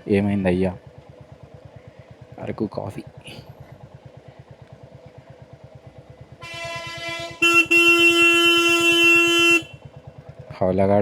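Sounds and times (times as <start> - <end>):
motorcycle engine running: 0.0 - 11.0
vehicle horn: 6.4 - 9.9.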